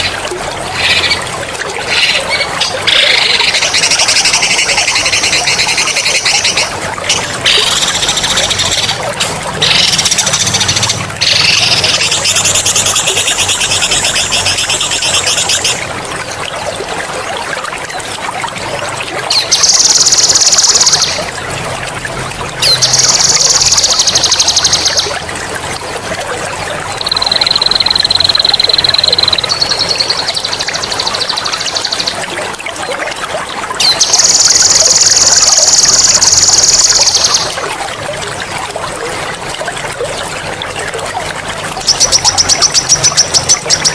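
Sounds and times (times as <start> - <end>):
running water trickling: 0.0 - 43.9
songbird trilling: 26.9 - 32.1.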